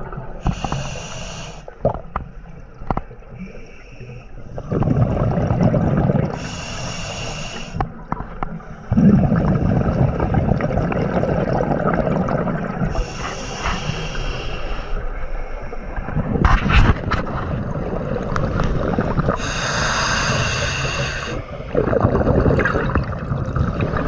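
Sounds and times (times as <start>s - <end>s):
hissing regulator inhale: 0.4s - 1.8s, 6.3s - 7.9s, 12.9s - 15.9s, 19.3s - 21.9s
gurgling exhaled bubbles: 4.6s - 6.6s, 8.8s - 14.1s, 15.9s - 24.0s.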